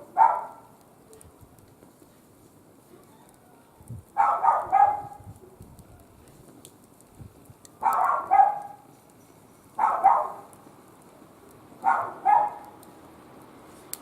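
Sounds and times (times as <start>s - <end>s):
dog barking: 0.1s - 0.7s, 4.2s - 5.2s, 7.8s - 8.9s, 9.8s - 10.5s, 11.8s - 12.8s.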